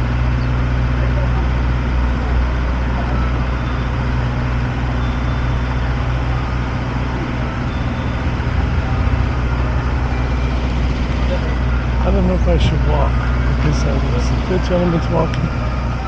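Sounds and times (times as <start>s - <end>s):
engine idling: 0.0s - 16.0s
street traffic rumble: 0.0s - 16.0s.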